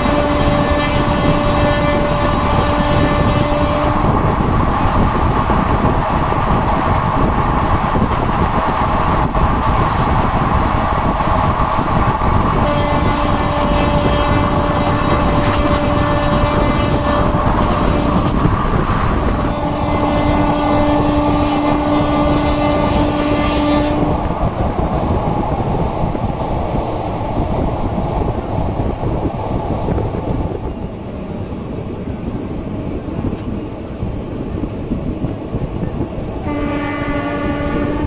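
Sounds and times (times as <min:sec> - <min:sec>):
locomotive horn blasts: 0:00.0 - 0:04.2, 0:12.6 - 0:18.4, 0:19.3 - 0:24.3, 0:36.4 - 0:38.0
train wheels rumbling on rails: 0:00.0 - 0:38.0.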